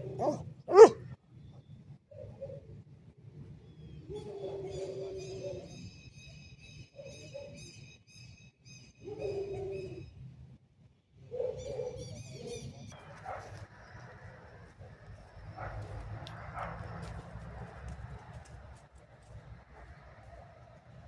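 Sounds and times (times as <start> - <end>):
birds chirping: 0.0 - 1.0
low cooing bird calls: 0.0 - 1.0, 2.1 - 2.8, 3.6 - 5.9, 7.0 - 7.8, 9.0 - 10.1, 11.2 - 12.9
distant road traffic rumble: 0.0 - 1.1, 13.0 - 21.0.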